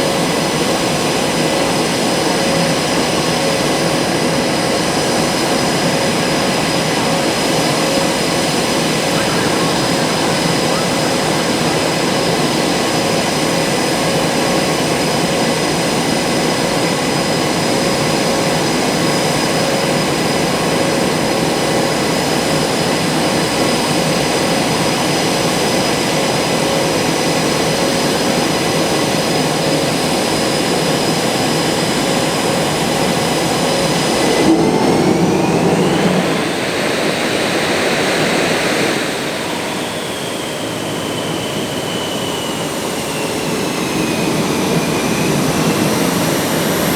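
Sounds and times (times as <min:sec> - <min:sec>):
jet engines whining and rumbling: 0:00.0 - 0:46.9.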